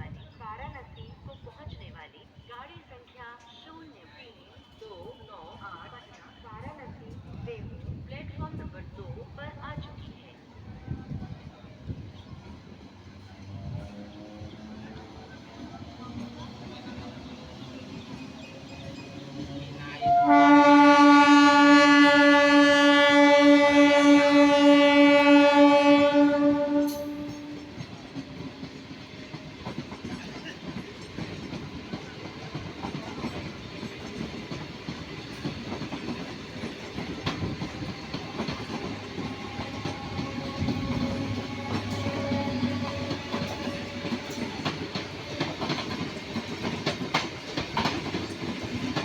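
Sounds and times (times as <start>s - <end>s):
train horn blast: 19.8s - 27.8s, 39.2s - 44.7s
train wheels clattering on rails: 24.0s - 49.0s.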